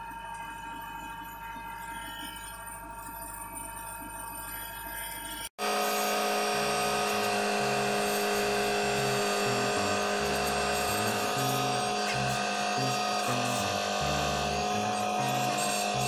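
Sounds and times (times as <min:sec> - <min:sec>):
music with pulsing bass: 0:06.5 - 0:16.0.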